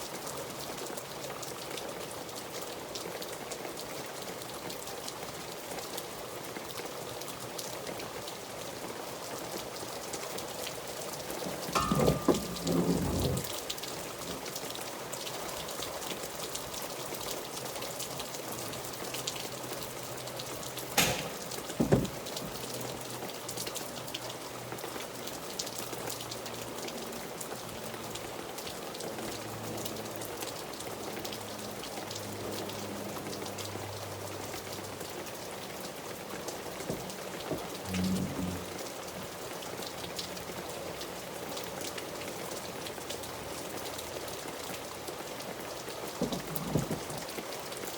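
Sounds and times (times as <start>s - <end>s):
rain drops ticking: 0.0s - 47.9s
sharp knocks: 11.8s - 13.4s, 21.0s - 22.3s.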